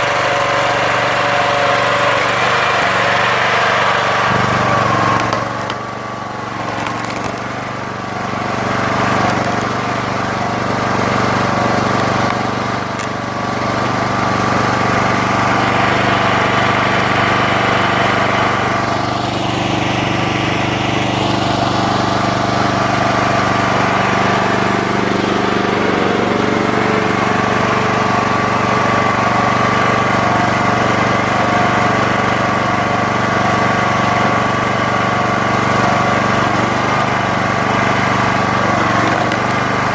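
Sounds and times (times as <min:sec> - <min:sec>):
logs creaking and cracking: 0:00.0 - 0:09.9, 0:10.6 - 0:17.2, 0:36.2 - 0:39.9
log splitter engine running: 0:00.0 - 0:39.9.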